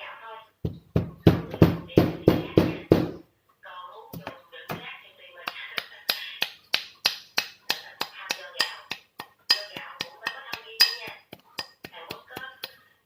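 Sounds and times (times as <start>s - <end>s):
sharp taps with clinking ring: 8.6s - 12.8s.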